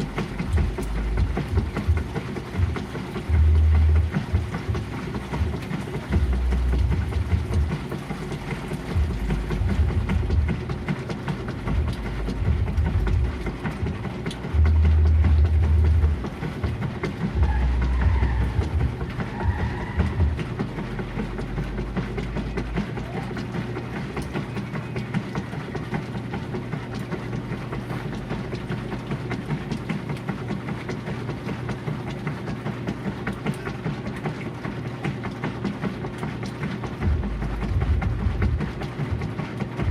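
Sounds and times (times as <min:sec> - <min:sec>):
washing machine rumbling: 0:00.0 - 0:39.9.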